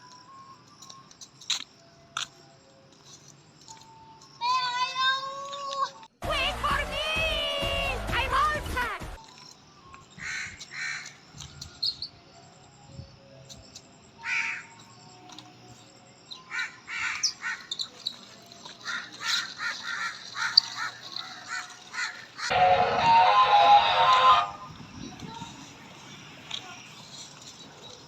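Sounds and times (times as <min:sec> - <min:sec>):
birds calling: 0:09.3 - 0:12.3, 0:14.1 - 0:22.6.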